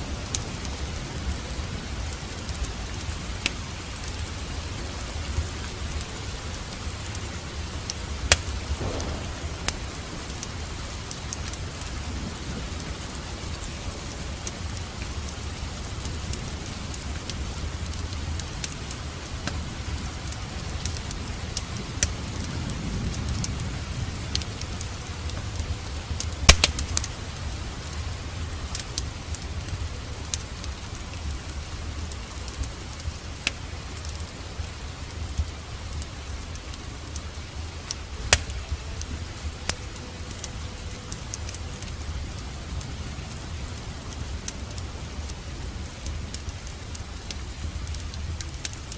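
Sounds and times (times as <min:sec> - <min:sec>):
steady rain: 0:00.0 - 0:48.9
wood fire crackling: 0:00.0 - 0:48.9
low rumble: 0:08.7 - 0:12.6.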